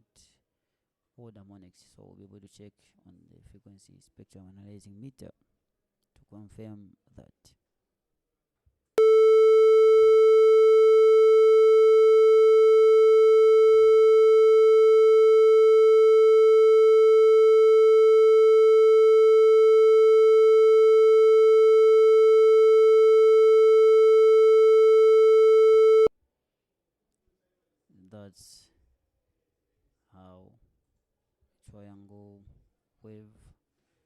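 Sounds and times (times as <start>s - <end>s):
soft pure tone: 9.0s - 26.1s.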